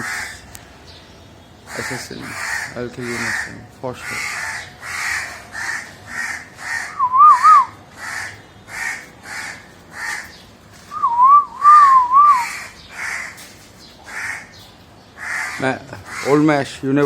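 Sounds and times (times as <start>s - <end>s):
crow cawing: 0.0s - 0.4s, 1.6s - 10.4s, 11.8s - 14.6s, 15.2s - 16.6s
loud wavering whistle: 7.0s - 7.7s, 10.9s - 12.5s.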